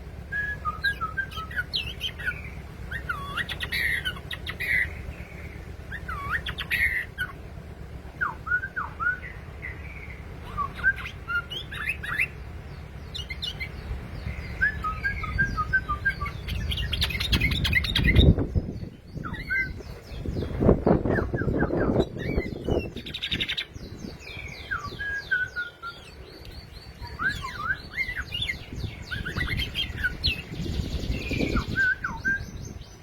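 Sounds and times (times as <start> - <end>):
rumbling noise: 0.0 - 25.1
low steady hum: 0.0 - 33.0
bulbul singing whistled phrases: 0.2 - 7.4, 8.2 - 33.0.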